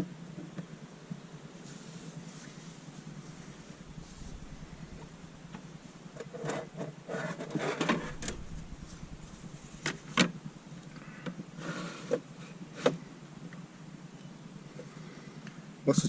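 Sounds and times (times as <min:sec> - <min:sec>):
gear rustling and scraping: 0:01.6 - 0:10.2.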